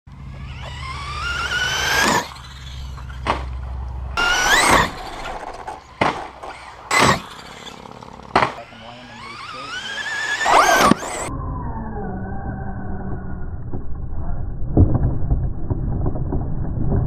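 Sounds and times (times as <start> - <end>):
electric motor whining: 0.1 - 13.2.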